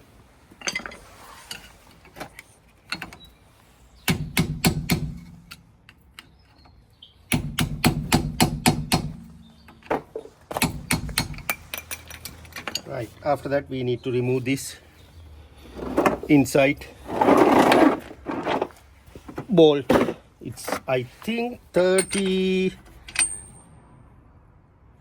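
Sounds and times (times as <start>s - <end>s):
hammer striking metal cap: 21.9s - 22.4s.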